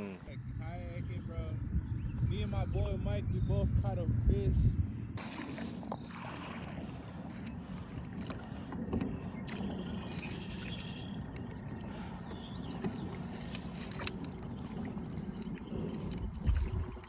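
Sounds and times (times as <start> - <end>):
wind rumble: 0.3 - 9.4, 11.2 - 17.0
water lapping around kayak: 5.2 - 17.0.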